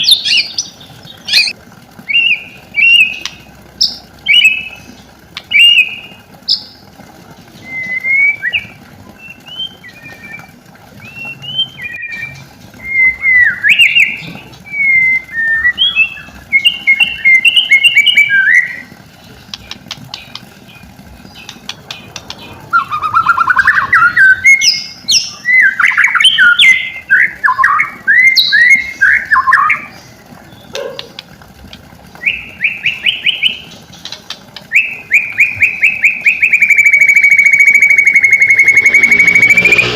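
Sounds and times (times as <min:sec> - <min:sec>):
bird singing whistled phrases: 0:07.6 - 0:18.9, 0:22.7 - 0:29.9, 0:32.2 - 0:33.7, 0:34.7 - 0:39.9
bird trills: 0:32.2 - 0:39.9.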